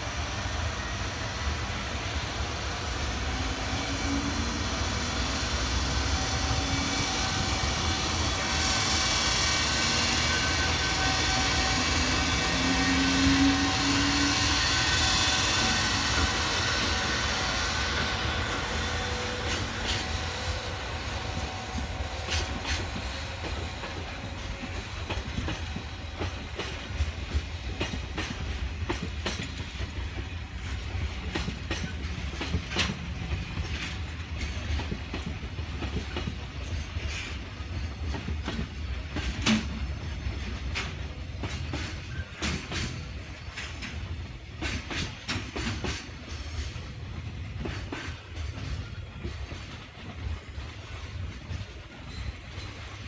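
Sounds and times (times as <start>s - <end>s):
wheels clicking over rail joints: 21.4s - 53.0s.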